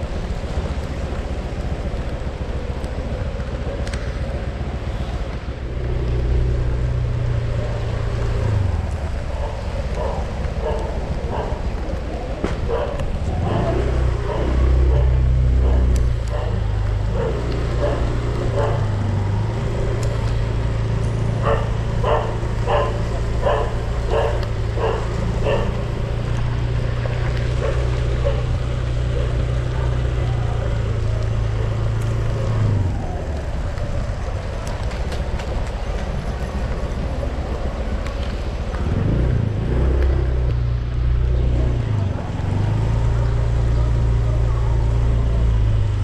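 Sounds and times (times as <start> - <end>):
vehicle engine running: 0.0 - 46.0
dog barking: 9.3 - 11.8, 12.6 - 19.0, 21.4 - 26.2, 27.6 - 30.1.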